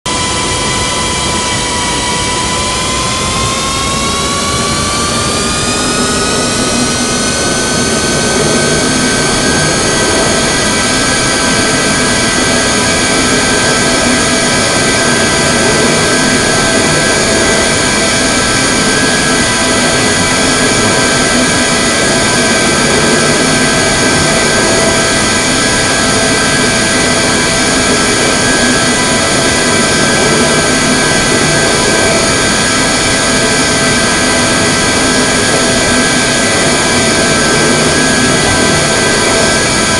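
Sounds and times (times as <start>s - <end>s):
jet engines spooling up: 0.1s - 39.9s.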